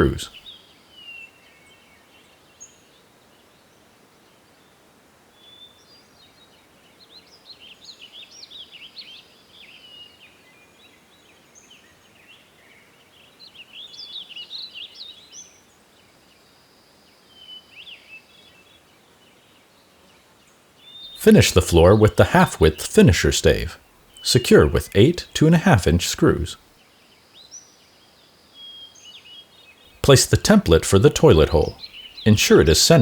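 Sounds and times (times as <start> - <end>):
faint background hiss: 0.0 - 0.4, 15.4 - 33.0
songbirds chirping: 0.0 - 0.4, 20.8 - 26.6, 28.7 - 33.0.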